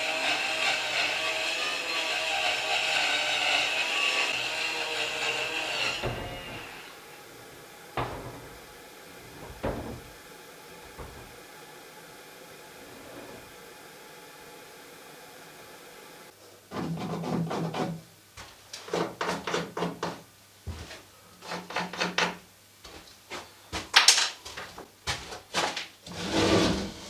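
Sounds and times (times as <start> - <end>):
wood scraping and rubbing: 4.2 - 10.2, 10.8 - 11.4, 26.1 - 27.0.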